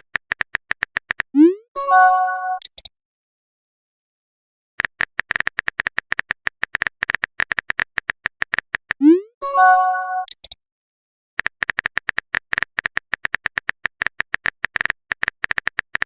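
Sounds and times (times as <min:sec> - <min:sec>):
phone keyboard clicks: 0:00.0 - 0:01.3, 0:04.8 - 0:09.0, 0:11.4 - 0:16.0
multi-note chime: 0:09.4 - 0:10.3.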